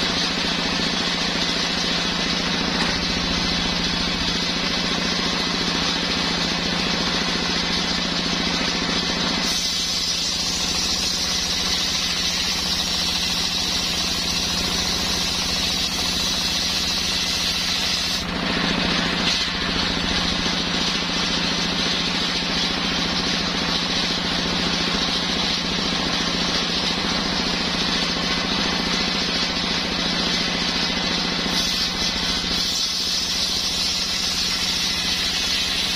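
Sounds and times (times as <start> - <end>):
circular saw blade hissing: 1.8 - 21.5, 31.3 - 35.9.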